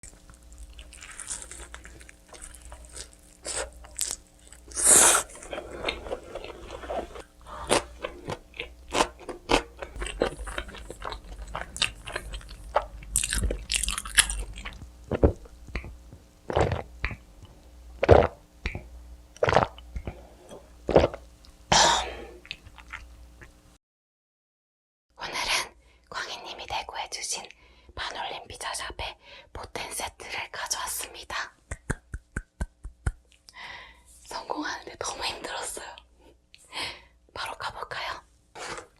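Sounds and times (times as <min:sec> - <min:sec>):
crunchy biting and chewing: 0:00.1 - 0:17.2, 0:19.4 - 0:20.1.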